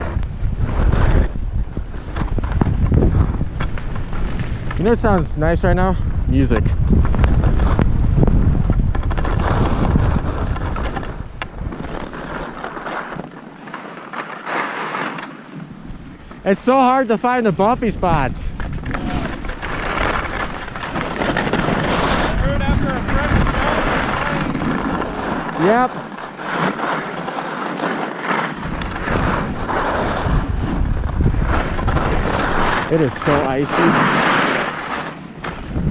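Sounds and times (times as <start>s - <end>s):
wind buffeting microphone: 0.0s - 12.8s, 17.4s - 26.9s, 28.5s - 35.9s
skis sliding on snow: 0.0s - 35.9s
sharp clicks and scrapes: 8.7s - 15.4s, 18.6s - 35.7s.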